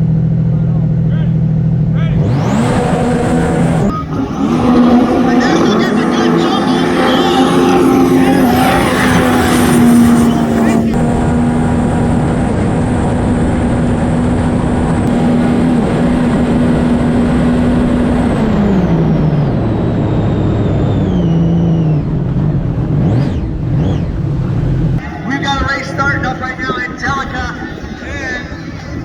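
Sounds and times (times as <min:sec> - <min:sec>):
jet ski engine revving: 0:00.2 - 0:29.0
high whine: 0:03.6 - 0:18.4, 0:25.0 - 0:29.0
water noise: 0:03.9 - 0:11.4.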